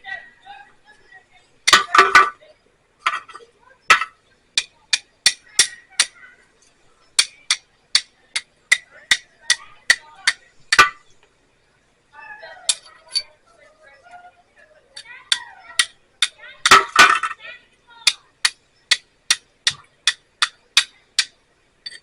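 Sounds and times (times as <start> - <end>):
flint and steel striking: 1.6 - 2.4, 3.0 - 6.2, 7.1 - 11.3, 15.0 - 17.4, 18.1 - 22.0.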